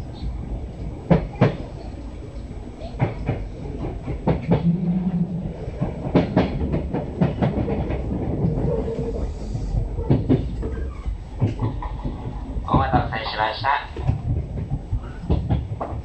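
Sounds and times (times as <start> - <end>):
train interior rumble: 0.0 - 16.0
wheels clacking over rail joints: 2.9 - 9.2, 9.8 - 13.2, 13.9 - 16.0.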